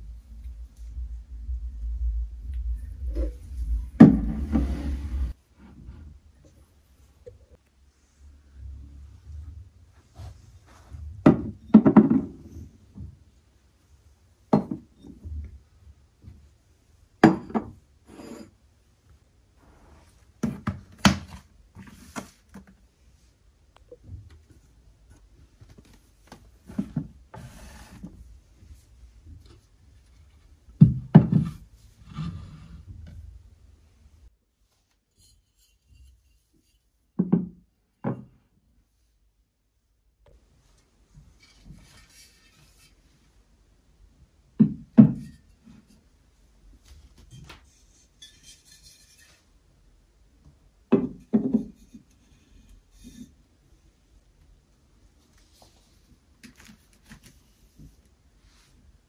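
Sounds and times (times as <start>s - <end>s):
rustling and scraping: 2.5s - 7.4s, 40.6s - 43.4s, 45.1s - 49.6s.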